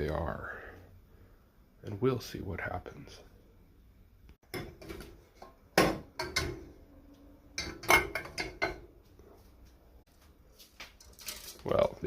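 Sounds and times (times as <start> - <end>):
dishes and cutlery clinking: 4.4 - 6.7, 7.6 - 8.9.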